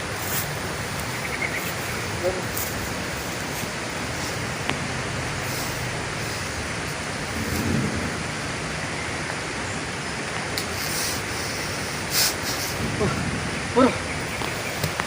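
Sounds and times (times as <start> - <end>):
heavy rain falling: 0.0 - 15.0
low rumble: 4.4 - 9.6.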